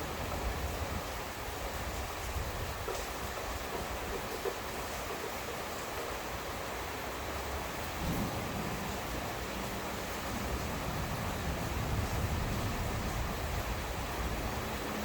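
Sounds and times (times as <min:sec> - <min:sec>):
heavy rain falling: 0:00.0 - 0:15.0
thunder rumbling: 0:07.9 - 0:15.0.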